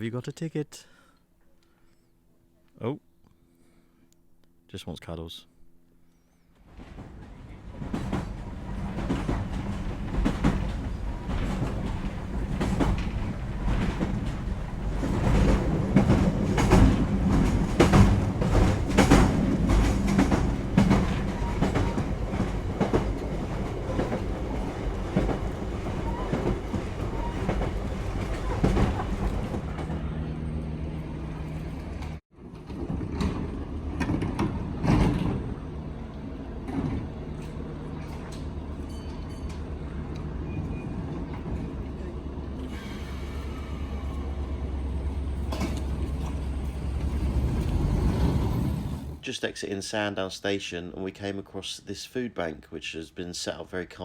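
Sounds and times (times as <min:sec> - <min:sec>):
electric train hum: 0:05.8 - 0:49.2
train wheels clacking over rail joints: 0:06.7 - 0:30.1.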